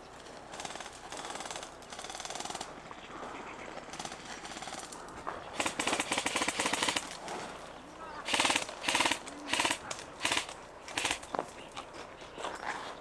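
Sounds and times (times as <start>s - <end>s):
airsoft guns firing bursts: 0.5s - 3.0s, 3.8s - 7.4s, 8.2s - 11.4s.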